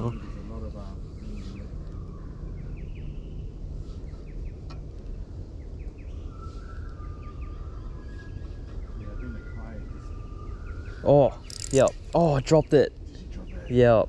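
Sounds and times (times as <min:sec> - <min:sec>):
low outdoor rumble: 0:00.0 - 0:14.0
small birds chirping: 0:00.0 - 0:14.0
sharp click: 0:11.5 - 0:12.0.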